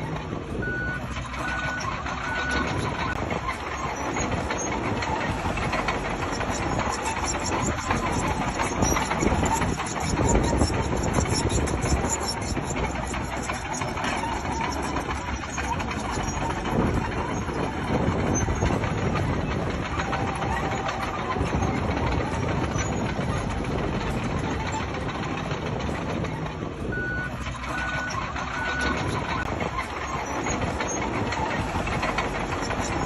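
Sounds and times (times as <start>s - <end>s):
bulldozer engine running: 0.0s - 33.0s
reversing beeps: 0.6s - 3.2s, 26.9s - 29.4s.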